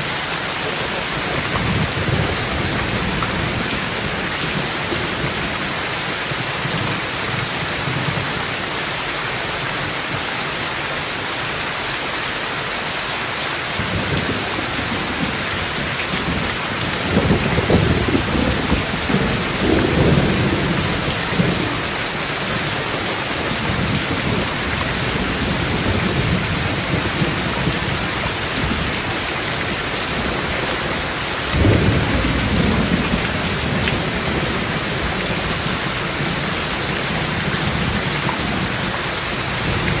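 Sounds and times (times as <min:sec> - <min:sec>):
heavy rain: 0:00.0 - 0:40.0
rolling thunder: 0:13.9 - 0:21.9, 0:23.5 - 0:38.9.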